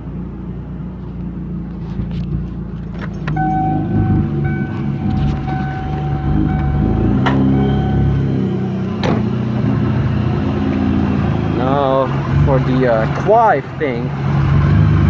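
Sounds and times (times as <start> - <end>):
supercharged car engine idling: 0.0 - 15.0
thin whining tone: 3.0 - 11.2.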